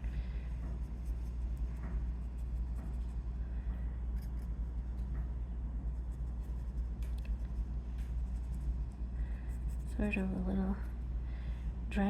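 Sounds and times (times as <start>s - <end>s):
low electrical hum: 0.0s - 12.0s
brush scratching on paper: 5.9s - 10.3s.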